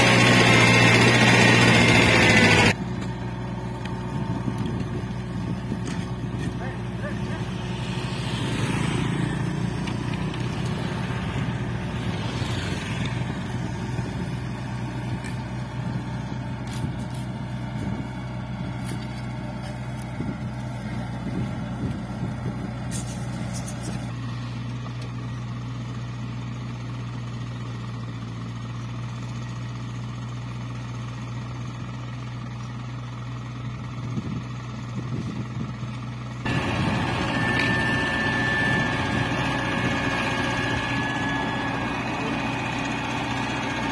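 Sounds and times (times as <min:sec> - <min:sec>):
diesel engines humming: 0:00.0 - 0:43.9.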